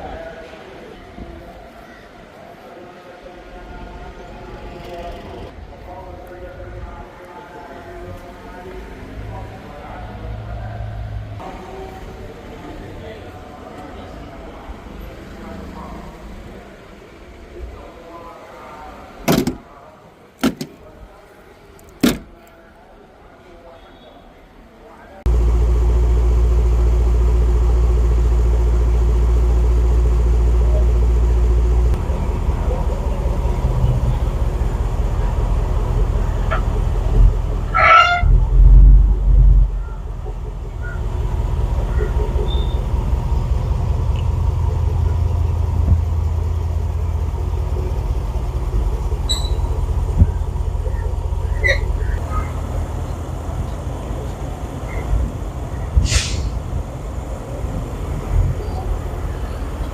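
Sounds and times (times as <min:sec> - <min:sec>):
brief clicks and knocks: 0:20.4 - 0:20.8
car engine idling: 0:20.4 - 0:20.9, 0:25.3 - 0:59.9.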